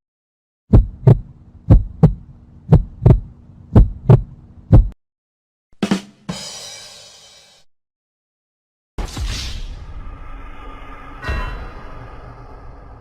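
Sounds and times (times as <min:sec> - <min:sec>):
heartbeat double thumps: 0:00.7 - 0:05.0
bright shimmering whoosh: 0:09.6 - 0:13.0
short hit: 0:11.2 - 0:13.0.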